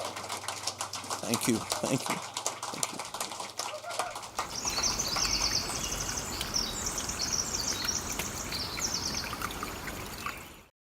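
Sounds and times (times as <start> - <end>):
high trilling chirps: 4.5 - 9.4.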